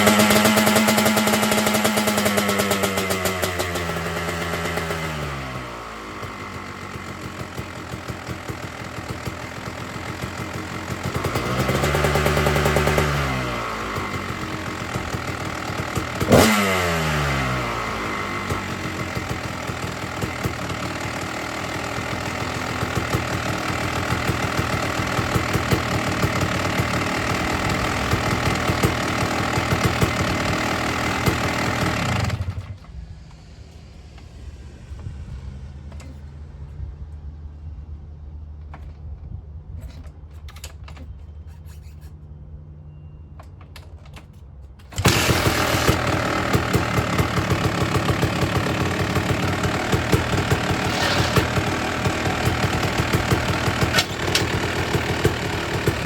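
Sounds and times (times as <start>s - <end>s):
two-stroke motorcycle engine revving: 0.0s - 33.0s, 44.9s - 56.0s
sharp engine crack: 44.9s - 56.0s.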